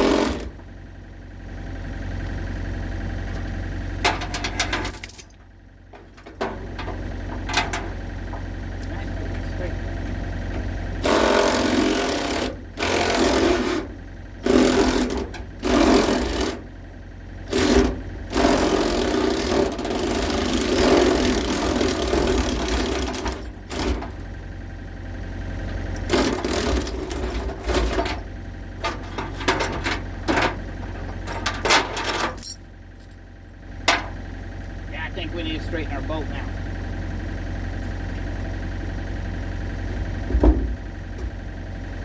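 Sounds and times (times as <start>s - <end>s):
steady low hum: 0.1s - 12.9s, 19.0s - 42.0s.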